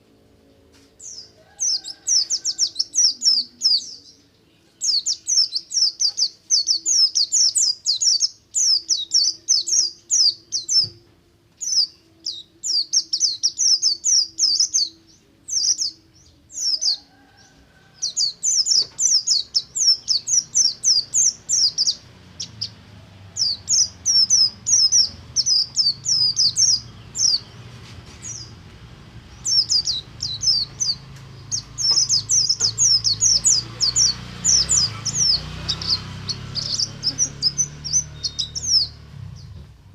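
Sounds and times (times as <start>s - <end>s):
bird twittering: 11.6s - 17.4s, 18.0s - 22.8s, 23.4s - 27.6s, 29.3s - 39.5s.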